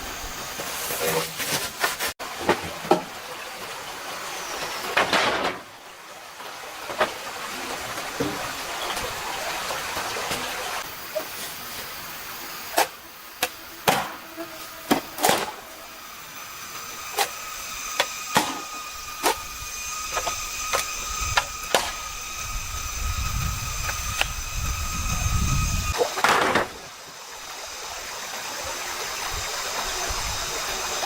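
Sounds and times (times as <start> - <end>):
stream rushing: 2.2 - 14.3.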